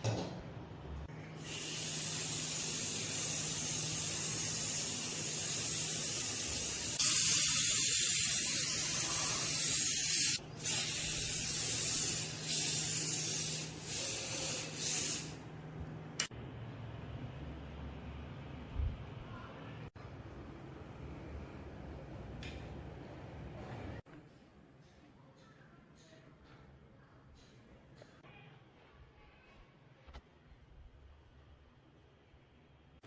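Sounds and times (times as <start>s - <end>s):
spray nozzle hissing: 1.4s - 15.4s.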